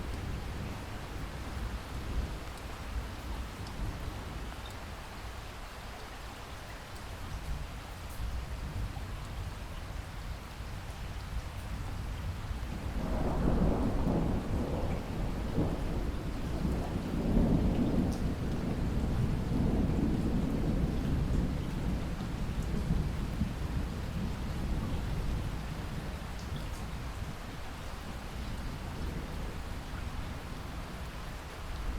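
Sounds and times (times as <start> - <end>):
steady rain: 0.0 - 31.9
thunder rumbling: 12.7 - 26.1.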